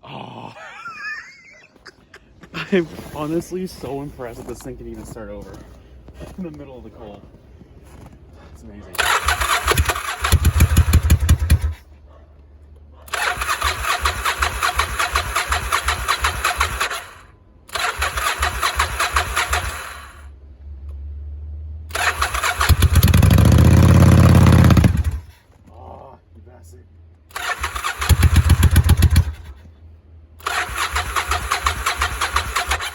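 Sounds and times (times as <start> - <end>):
motorcycle engine running: 8.9 - 11.8, 21.9 - 25.3, 27.3 - 29.7
electric starter cranking engine: 9.0 - 11.8, 13.1 - 20.3, 21.9 - 25.3, 27.3 - 29.6, 30.4 - 32.9.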